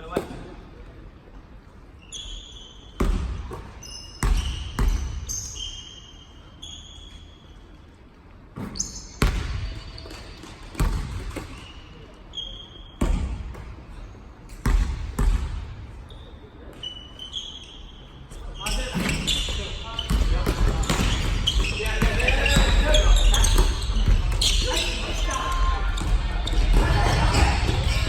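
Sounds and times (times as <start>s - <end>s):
sneakers squeaking on court: 2.0s - 28.0s
basketball bouncing on floor: 8.6s - 11.6s, 20.0s - 24.8s.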